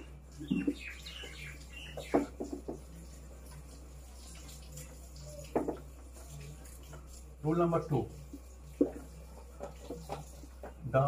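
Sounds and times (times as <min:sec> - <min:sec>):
small birds chirping: 0:00.0 - 0:07.2.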